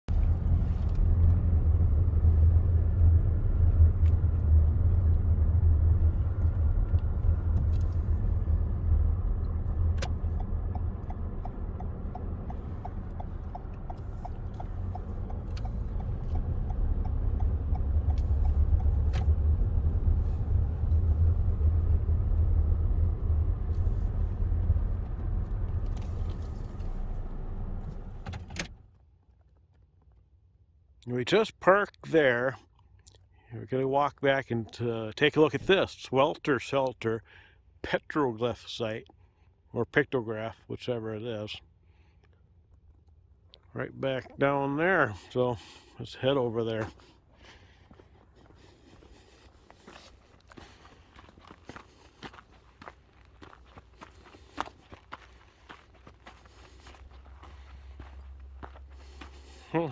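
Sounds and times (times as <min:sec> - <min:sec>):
car engine and road noise: 0:00.0 - 0:29.2, 0:42.5 - 0:59.9.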